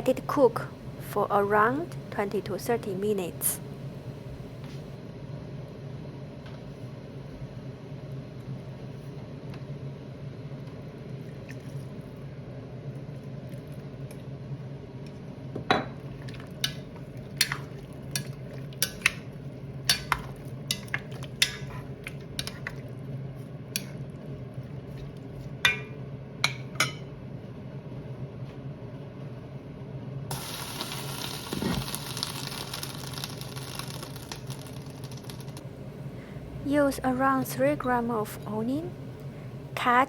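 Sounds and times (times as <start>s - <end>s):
low steady hum: 0.0s - 40.0s
food sizzling hiss: 30.3s - 36.6s.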